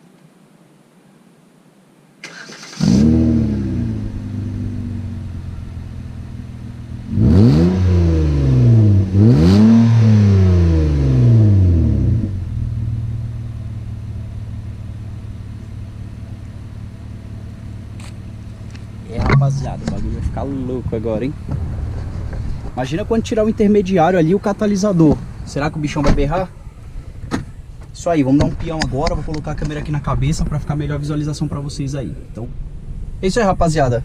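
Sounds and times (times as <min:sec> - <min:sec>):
car engine starting and revving: 0:02.2 - 0:27.9.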